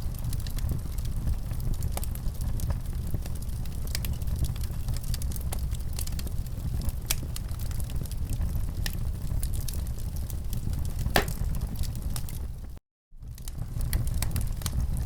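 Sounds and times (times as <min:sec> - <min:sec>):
wood fire crackling: 0:00.0 - 0:15.0
fire snapping: 0:11.2 - 0:12.0.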